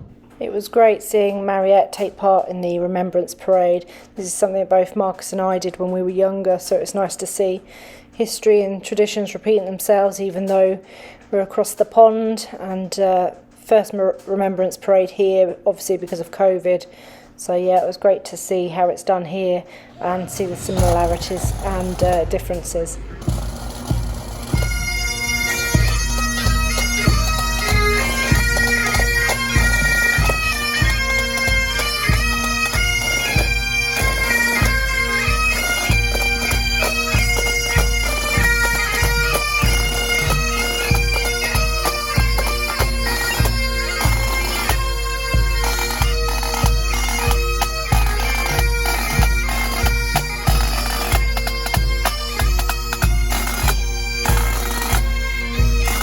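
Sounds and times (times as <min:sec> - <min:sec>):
bagpipes playing march: 0:19.7 - 0:56.0
drum beat: 0:19.9 - 0:34.8.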